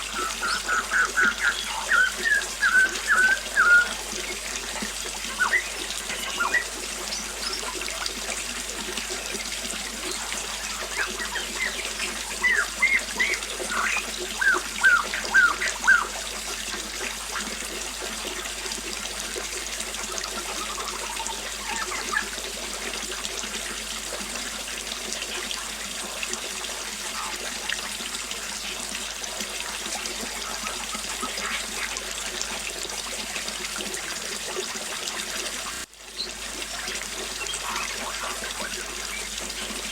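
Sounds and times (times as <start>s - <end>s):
birds chirping: 0.0s - 8.1s, 9.0s - 16.2s, 20.3s - 22.3s, 27.0s - 27.7s, 30.0s - 32.0s, 37.2s - 39.9s
small waterfall splashing: 0.0s - 39.9s.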